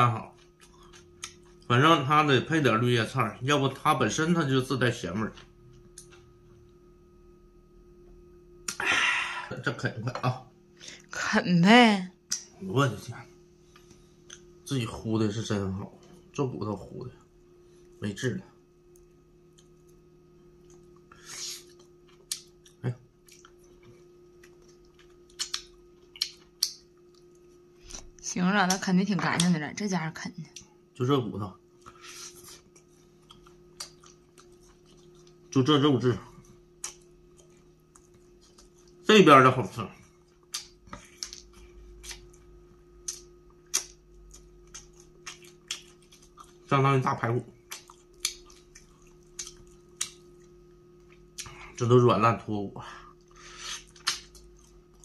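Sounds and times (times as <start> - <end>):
person chewing meat off bone: 31.8 - 35.5, 36.8 - 39.0, 40.2 - 46.7, 47.6 - 51.6, 53.2 - 55.0.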